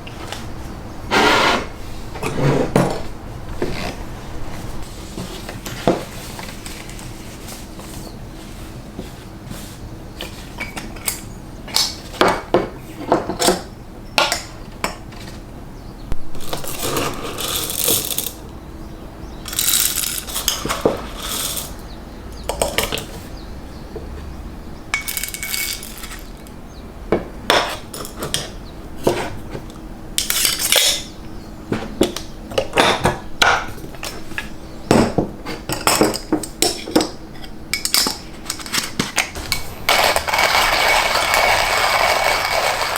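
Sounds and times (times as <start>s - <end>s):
short hissing: 1.1s - 1.9s
dishes and utensils clinking: 24.9s - 26.4s, 34.9s - 42.9s.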